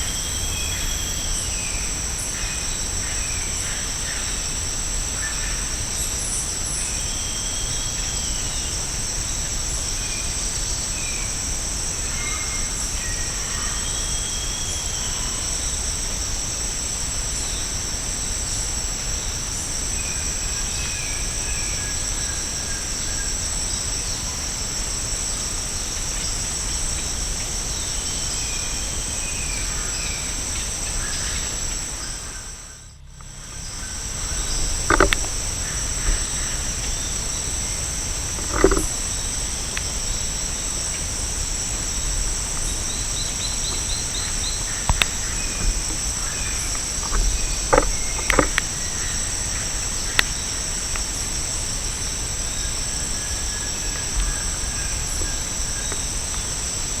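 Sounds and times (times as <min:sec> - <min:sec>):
insect chorus buzzing: 0:00.0 - 0:57.0
sharp knocks: 0:34.9 - 0:35.3.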